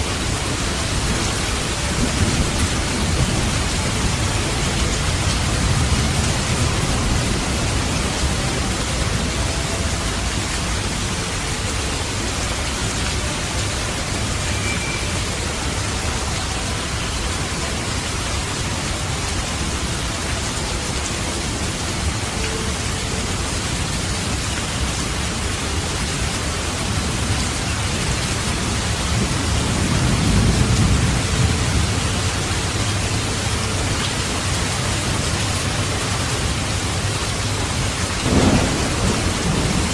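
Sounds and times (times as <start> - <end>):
heavy rain: 0.0 - 39.9
low rolling thunder: 38.2 - 39.9.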